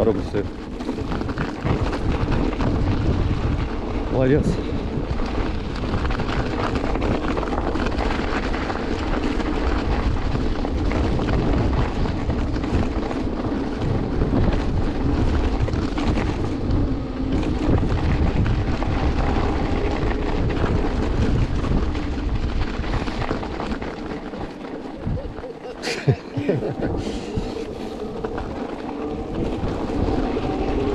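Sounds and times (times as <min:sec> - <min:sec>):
road and running noise: 0:00.0 - 0:30.9
wind rushing over microphone: 0:00.0 - 0:30.9.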